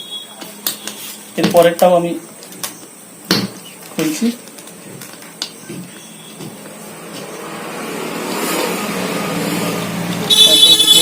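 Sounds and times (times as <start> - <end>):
vehicle engine approaching: 6.7 - 10.3
vehicle horn: 10.2 - 11.0.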